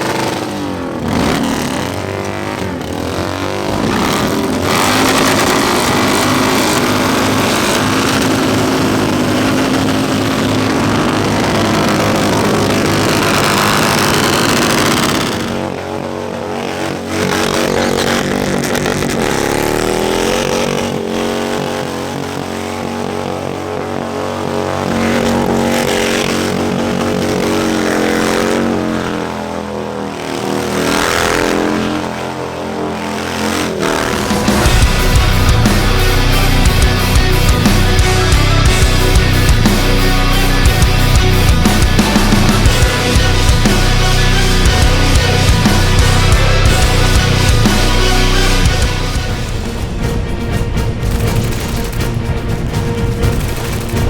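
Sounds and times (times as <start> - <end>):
motorcycle engine running: 0.0 - 54.0
wind rush: 48.7 - 54.0.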